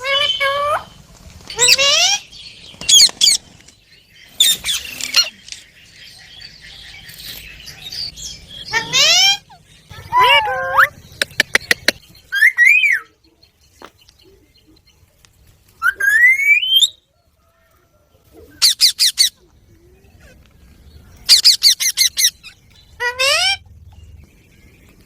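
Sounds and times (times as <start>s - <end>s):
parakeet calls and squawks: 0.0s - 2.3s, 4.4s - 11.6s, 18.6s - 19.5s, 20.1s - 23.8s.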